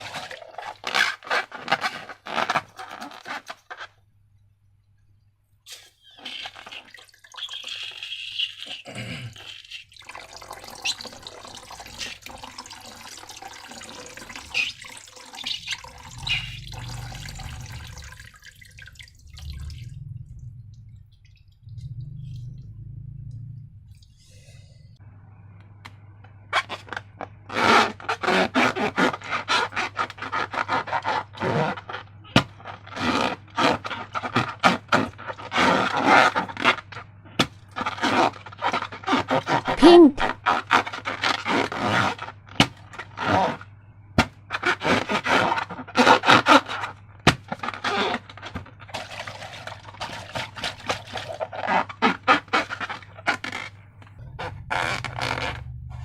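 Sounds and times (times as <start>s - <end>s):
squeak: 6.0s - 9.9s, 14.4s - 17.0s, 51.5s - 55.8s
slime squishing: 9.4s - 20.1s
steady low hum: 15.8s - 26.2s, 53.8s - 56.0s.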